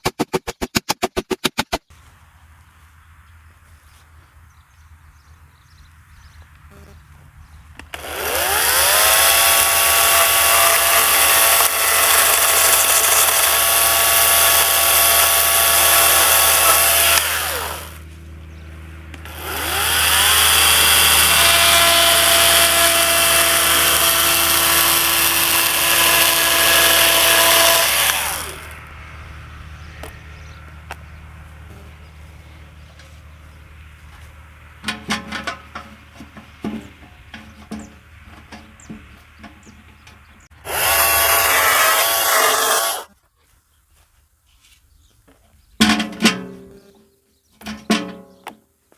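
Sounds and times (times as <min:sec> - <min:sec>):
power tool motor whine: 0:07.8 - 0:18.0, 0:19.2 - 0:28.8, 0:40.6 - 0:43.1.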